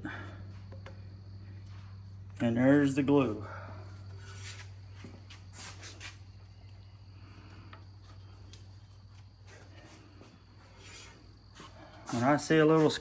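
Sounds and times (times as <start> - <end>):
steady low hum: 0.0 - 13.0
rubbing and scraping on wood: 9.4 - 13.0.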